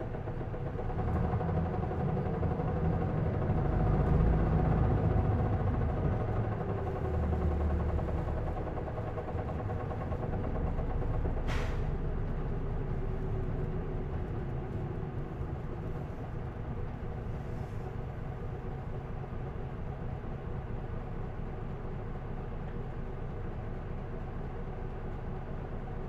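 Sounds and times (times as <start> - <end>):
bus diesel engine running: 0.0 - 26.0
short hiss of air: 11.5 - 11.9.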